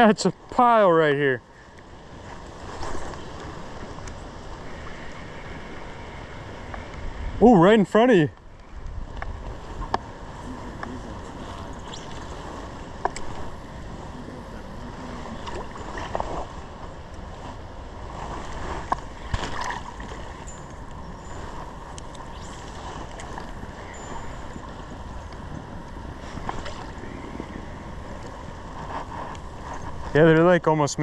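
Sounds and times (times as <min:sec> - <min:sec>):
knocks and splashes: 0:18.8 - 0:20.4.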